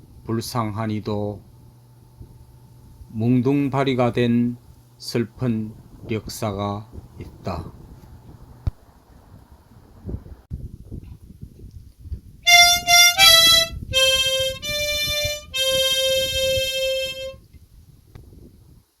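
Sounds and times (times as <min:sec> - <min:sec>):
reedy wind instrument melody: 0:12.5 - 0:17.4.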